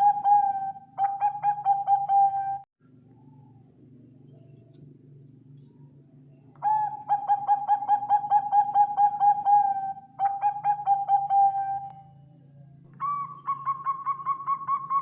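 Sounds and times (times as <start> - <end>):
dove cooing: 0.0 - 2.6, 6.6 - 12.2, 12.9 - 15.0
low background hum: 0.0 - 15.0.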